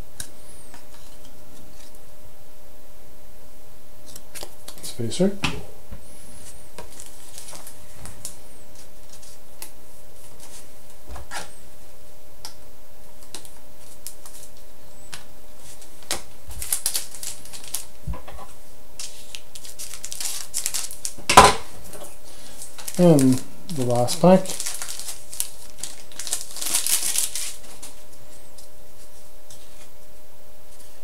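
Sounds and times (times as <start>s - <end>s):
cards and wrapper rustling: 6.4s - 9.4s, 13.2s - 14.6s, 15.6s - 17.9s, 19.0s - 21.2s, 22.3s - 28.7s.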